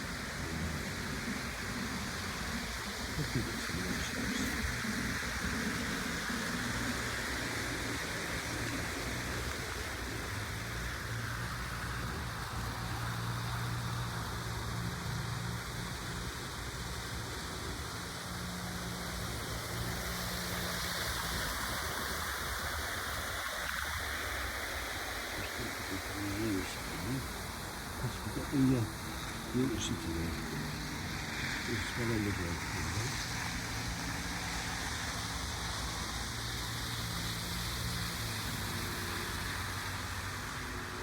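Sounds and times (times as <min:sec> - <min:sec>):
model train wheels whirring: 0:00.0 - 0:25.4.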